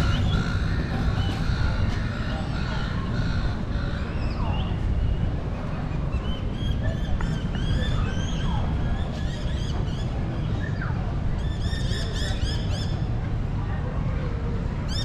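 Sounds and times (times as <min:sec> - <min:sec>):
steady low rumble: 0:00.0 - 0:11.8.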